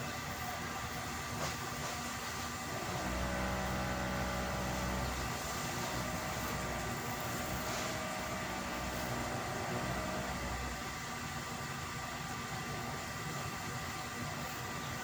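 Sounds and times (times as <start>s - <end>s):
steady mechanical hum: 0.0s - 15.0s
hiss: 4.6s - 10.2s.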